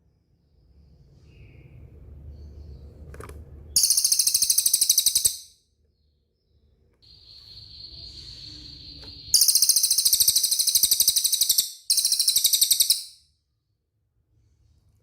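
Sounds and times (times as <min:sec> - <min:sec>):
bird whistling and trilling: 0:03.8 - 0:05.6, 0:07.1 - 0:13.2.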